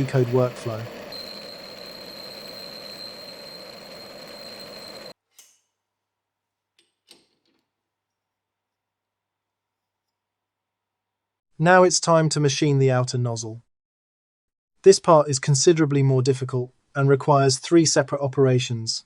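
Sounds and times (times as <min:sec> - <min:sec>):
lathe running with high whine: 0:00.0 - 0:05.2.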